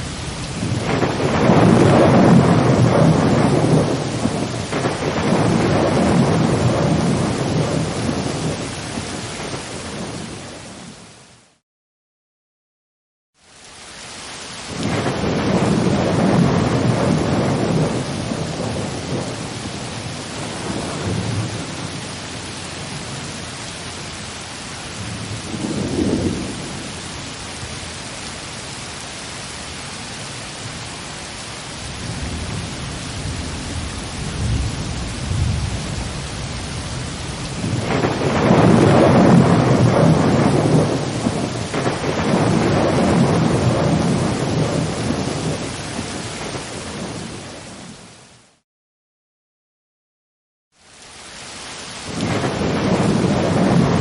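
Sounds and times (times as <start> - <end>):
rolling thunder: 0.0 - 10.6, 14.7 - 24.0, 25.0 - 27.0, 32.0 - 47.8, 52.0 - 54.0
rain hiss: 0.0 - 11.5, 13.4 - 48.6, 50.8 - 54.0.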